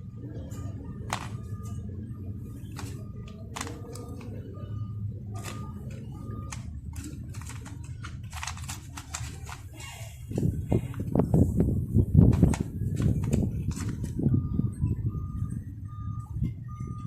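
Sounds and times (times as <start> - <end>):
steady low hum: 0.0 - 17.0
clicks and knocks of toy parts: 1.1 - 1.5, 2.7 - 4.3, 5.4 - 9.9, 12.2 - 14.2.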